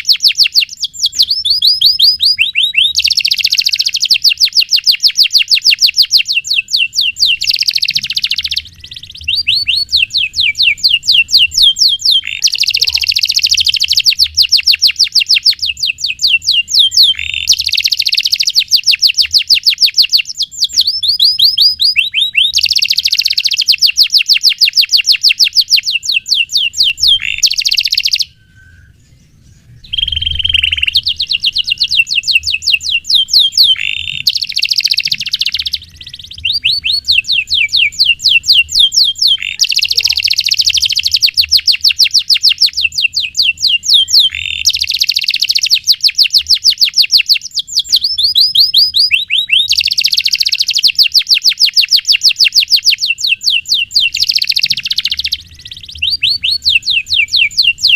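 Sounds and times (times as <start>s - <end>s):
canary singing trills: 0.0s - 57.9s.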